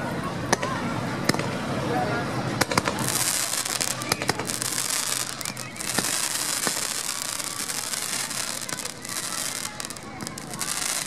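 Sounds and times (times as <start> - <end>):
fireworks crackling: 2.5 - 11.0
sharp firework pops: 2.6 - 11.0.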